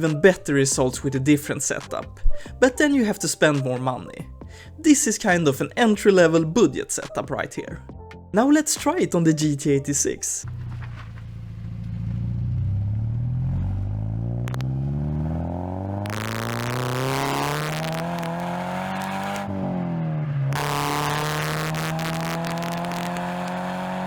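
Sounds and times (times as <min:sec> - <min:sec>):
car exhaust accelerating: 0:10.4 - 0:24.0.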